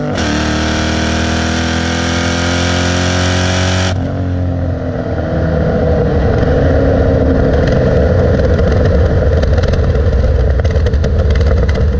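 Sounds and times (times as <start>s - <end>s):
loud vee eight engine drone: 0.0s - 9.3s.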